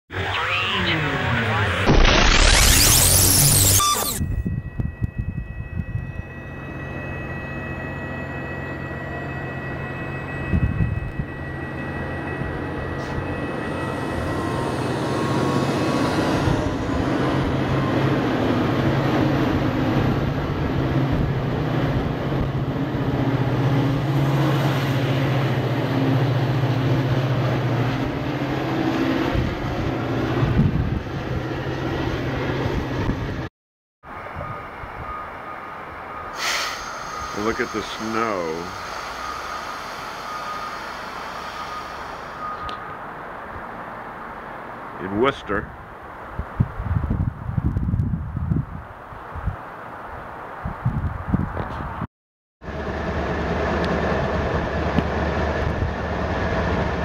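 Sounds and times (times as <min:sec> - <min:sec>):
diesel locomotive engine drone: 0:00.1 - 0:52.0, 0:52.6 - 0:57.0
train cars rumbling: 0:34.1 - 0:45.0.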